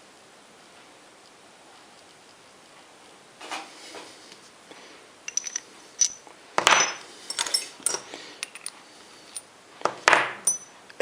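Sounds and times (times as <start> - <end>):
small metal parts clinking: 5.3 - 9.5, 10.4 - 10.8.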